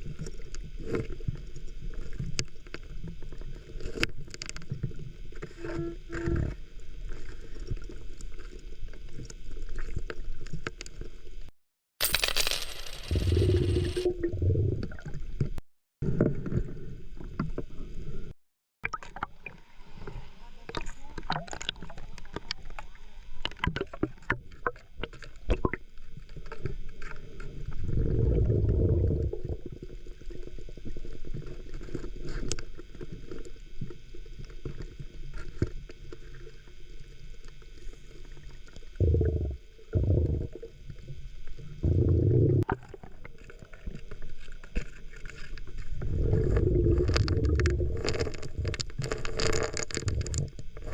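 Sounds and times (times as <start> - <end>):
pebbles and shells rattling underwater: 12.0 - 14.1, 42.6 - 50.9
low underwater rushing: 45.9 - 49.3.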